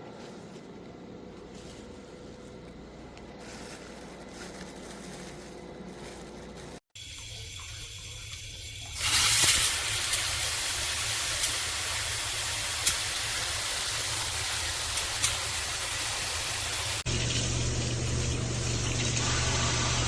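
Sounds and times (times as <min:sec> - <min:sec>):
water spraying from shower head: 0:07.0 - 0:20.0.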